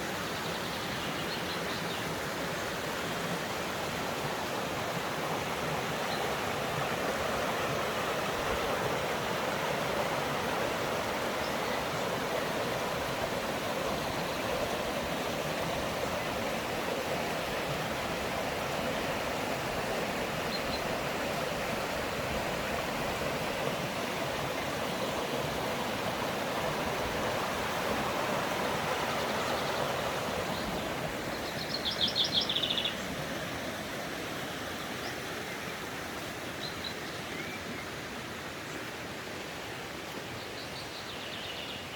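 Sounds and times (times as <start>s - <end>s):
stream rushing over stones: 0.0s - 40.7s.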